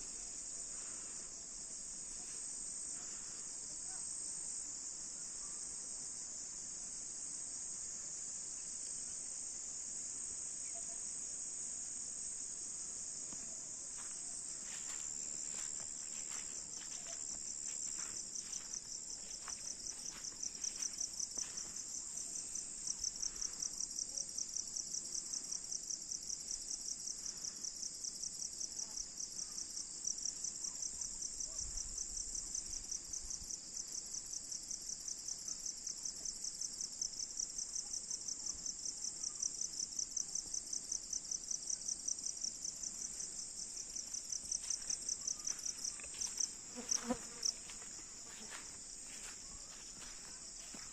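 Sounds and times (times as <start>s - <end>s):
insects trilling: 13.9s - 23.8s, 40.8s - 50.9s.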